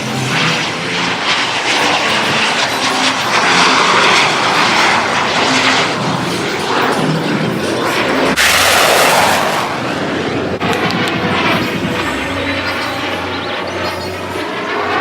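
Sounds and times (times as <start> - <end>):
airplane engine passing: 0.0 - 15.0.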